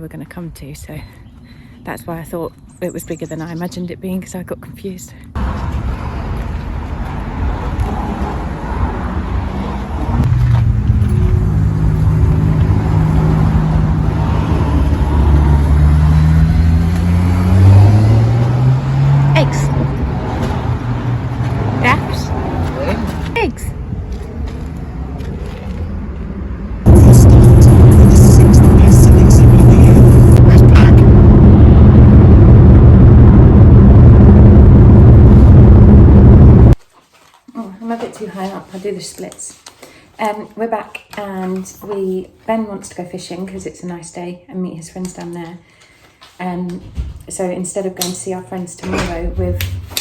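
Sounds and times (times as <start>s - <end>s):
road noise: 5.2s - 36.8s
car engine accelerating: 5.4s - 36.8s.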